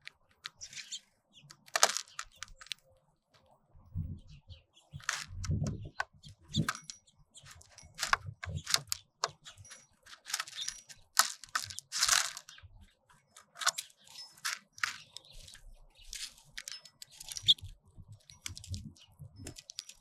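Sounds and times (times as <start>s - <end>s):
birds pecking seed: 0.0s - 20.0s
faint bird chirps: 0.5s - 1.5s, 2.2s - 11.0s.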